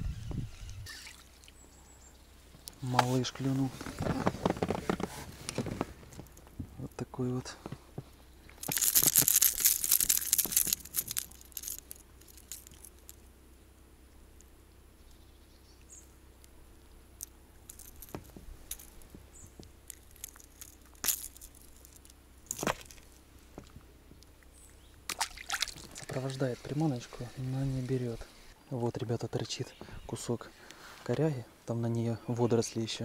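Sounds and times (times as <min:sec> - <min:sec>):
rustling handling noise: 0:02.8 - 0:06.8, 0:07.5 - 0:13.3, 0:17.2 - 0:23.8.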